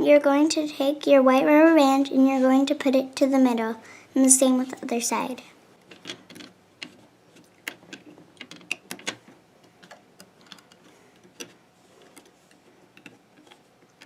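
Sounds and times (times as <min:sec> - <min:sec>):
rubber bands clicking on plastic pegs: 0:05.9 - 0:14.0.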